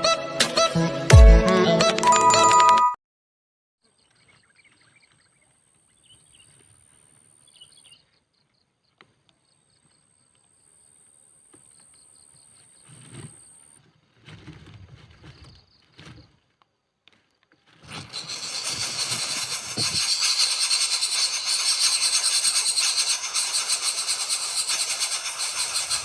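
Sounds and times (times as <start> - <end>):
small birds chirping: 3.8 - 13.7
high steady insect-like tone: 18.2 - 26.0.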